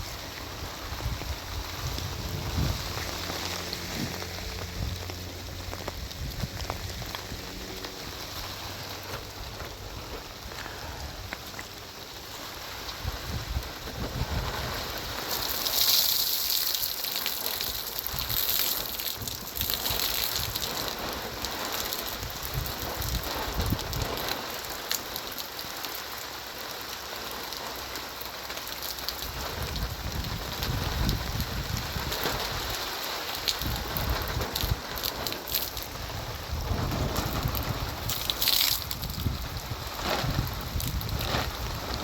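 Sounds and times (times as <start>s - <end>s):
heavy rain falling: 0.0s - 42.0s.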